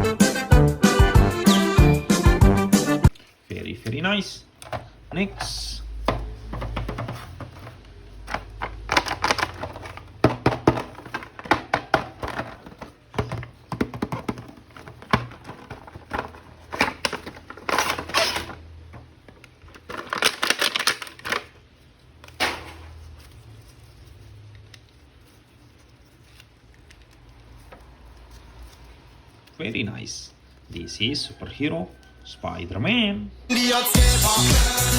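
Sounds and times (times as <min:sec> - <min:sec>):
package rustling: 0:05.9 - 0:29.6.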